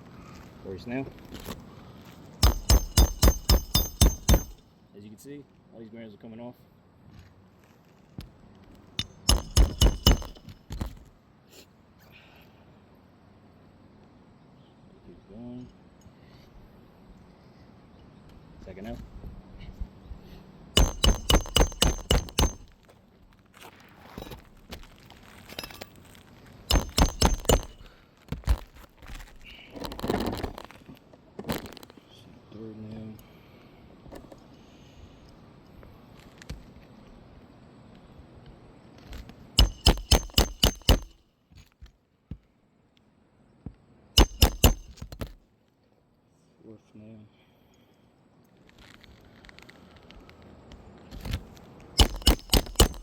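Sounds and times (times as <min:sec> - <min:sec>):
hammer striking nail: 0:02.4 - 0:04.6, 0:09.0 - 0:10.9, 0:20.8 - 0:22.7, 0:26.7 - 0:27.9, 0:39.6 - 0:41.2, 0:44.2 - 0:45.4, 0:52.0 - 0:53.0.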